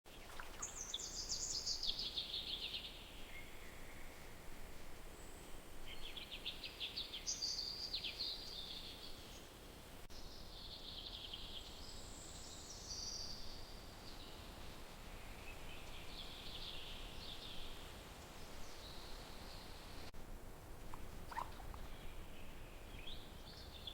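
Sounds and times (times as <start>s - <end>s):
songbirds chirping and warbling: 0.1s - 20.2s, 20.8s - 23.9s.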